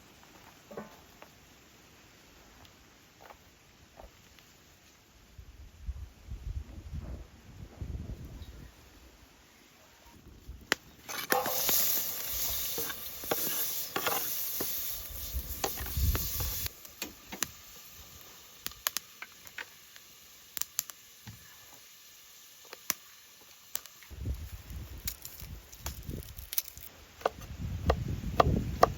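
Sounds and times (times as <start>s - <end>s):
food sizzling in hot oil: 11.1s - 26.9s.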